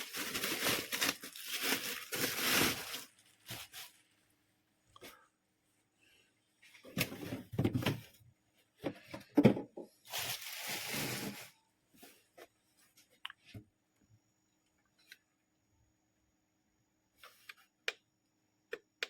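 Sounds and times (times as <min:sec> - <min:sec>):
rustling and knocking of objects: 0:06.6 - 0:13.8.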